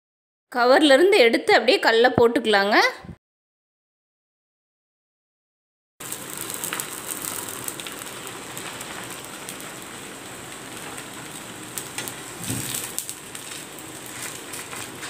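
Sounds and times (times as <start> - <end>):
food sizzling in oil: 6.0 - 15.0.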